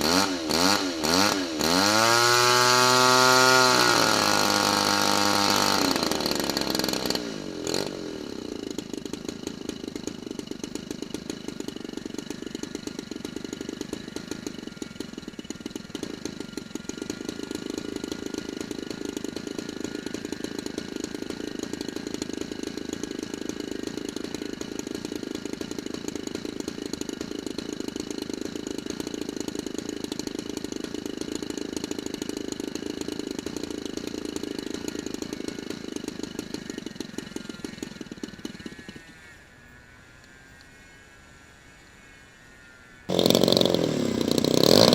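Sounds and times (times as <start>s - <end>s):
model aircraft engine buzzing: 0.0s - 25.4s, 43.0s - 44.9s.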